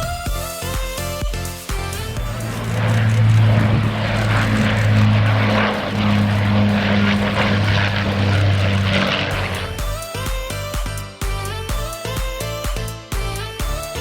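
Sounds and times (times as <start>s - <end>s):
propeller aircraft engine drone: 1.8s - 10.8s.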